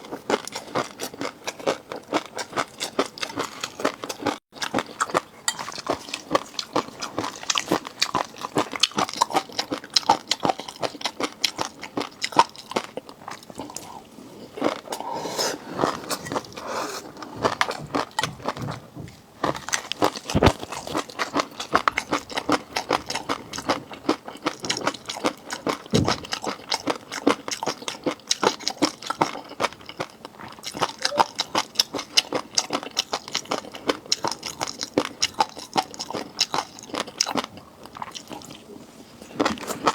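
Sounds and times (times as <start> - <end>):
chewing raw seafood: 0.0 - 18.8, 19.4 - 39.9
loud knocks: 26.0 - 26.3.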